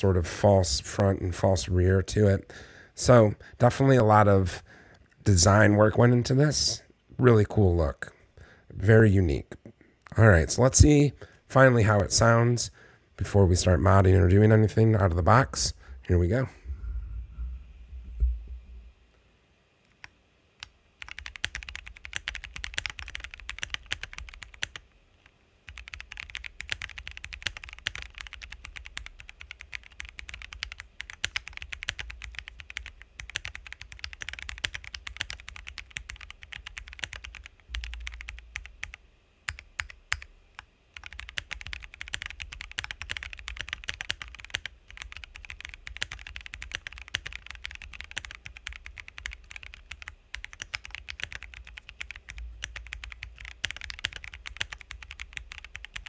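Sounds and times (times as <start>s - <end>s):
mechanical keyboard typing: 20.0s - 56.0s.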